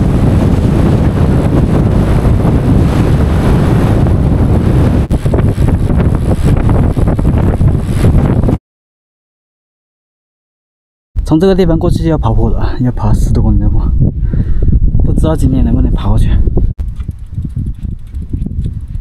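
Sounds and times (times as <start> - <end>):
wind rushing over microphone: 0.0 - 8.6, 11.2 - 19.0.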